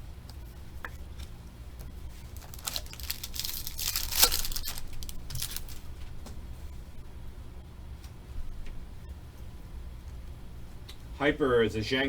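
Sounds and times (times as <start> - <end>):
card pack wrapper tearing: 2.3 - 5.9.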